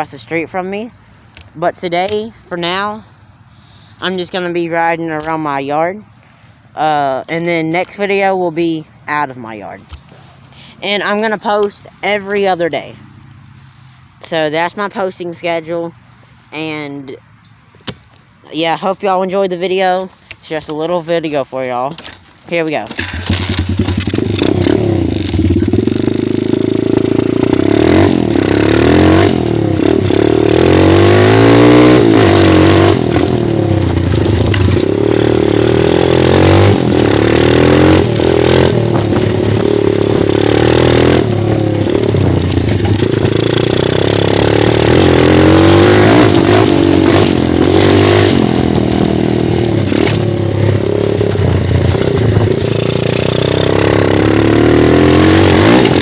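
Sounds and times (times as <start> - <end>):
dirt bike engine revving: 22.7 - 56.0.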